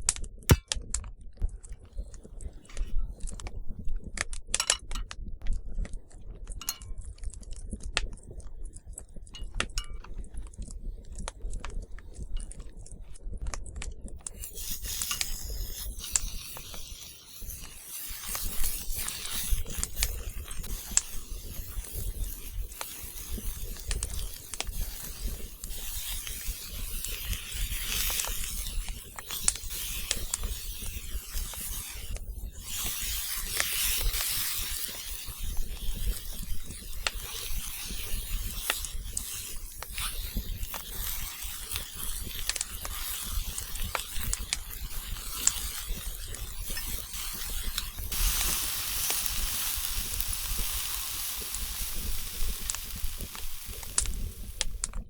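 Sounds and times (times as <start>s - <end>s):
clicks of small objects handled: 4.2s - 5.6s, 6.5s - 7.5s
steady hiss: 14.3s - 55.0s.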